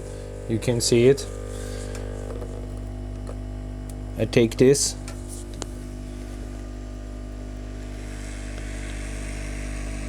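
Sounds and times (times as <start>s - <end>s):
mechanical hum: 0.0s - 10.0s
hot air gun blowing: 7.8s - 10.0s.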